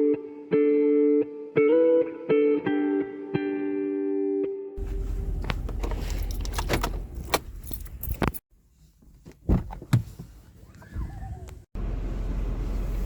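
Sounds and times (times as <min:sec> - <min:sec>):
steady low rumble: 0:04.8 - 0:08.4.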